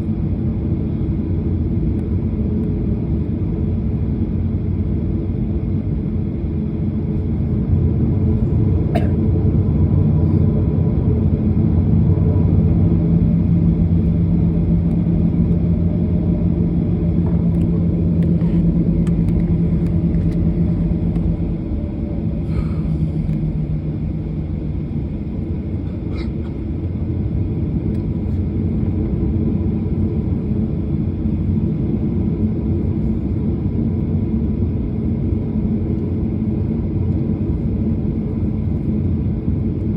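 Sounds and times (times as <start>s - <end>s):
airliner cabin engine rumble: 0.0s - 39.9s
low hum: 0.0s - 39.9s.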